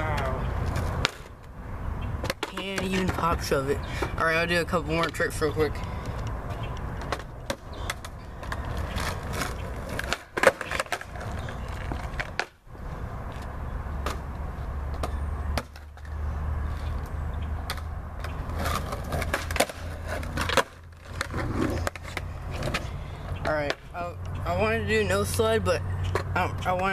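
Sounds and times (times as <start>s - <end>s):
skateboard wheels rumbling: 0.0s - 26.9s
skateboard deck clacking: 0.1s - 1.6s, 2.2s - 12.6s, 17.6s - 23.9s.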